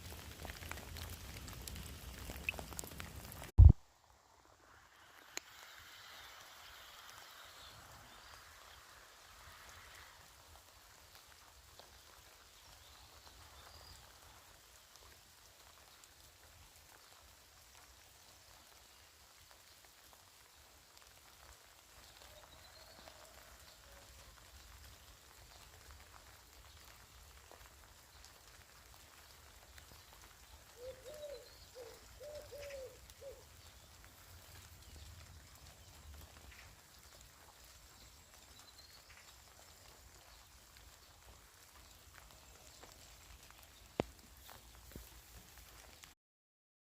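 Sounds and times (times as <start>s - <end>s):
water drips: 0.0s - 3.7s, 24.2s - 46.2s
rain pattering: 0.0s - 46.2s
bird cooing: 30.7s - 33.5s
bird chirping: 30.8s - 33.9s.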